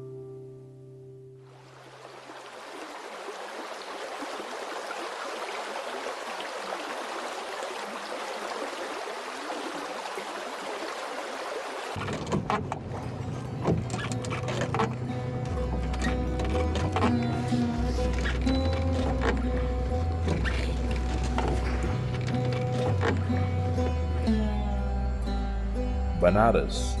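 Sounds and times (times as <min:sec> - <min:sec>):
flowing water rushing: 0:01.4 - 0:14.9.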